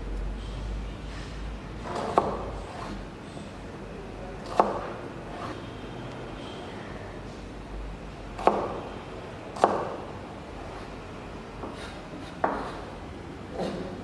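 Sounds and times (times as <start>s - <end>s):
knife chopping on cutting board: 8.4s - 8.8s, 9.6s - 10.0s, 11.6s - 12.9s.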